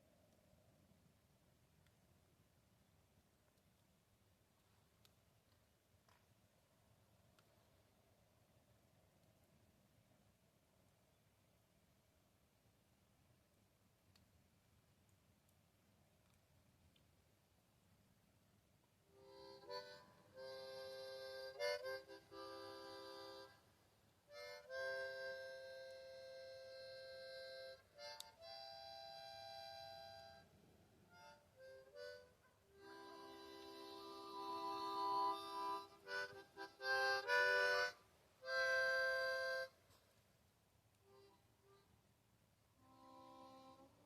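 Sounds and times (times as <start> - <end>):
harmonica playing chords: 19.2 - 23.6, 24.3 - 30.5, 31.1 - 39.8, 42.8 - 44.0.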